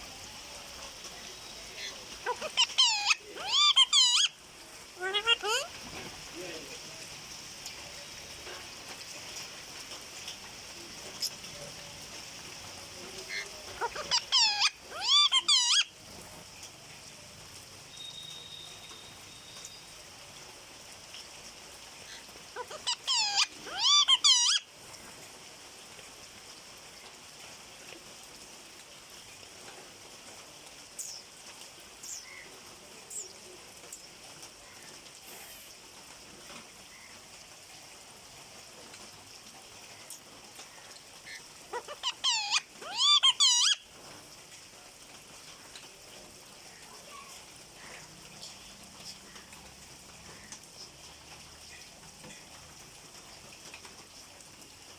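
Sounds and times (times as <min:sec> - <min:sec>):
parrot screeching: 0:01.7 - 0:04.4, 0:05.0 - 0:05.7, 0:13.3 - 0:15.9, 0:22.6 - 0:24.6, 0:41.3 - 0:43.8
faint short chirps: 0:17.9 - 0:19.9.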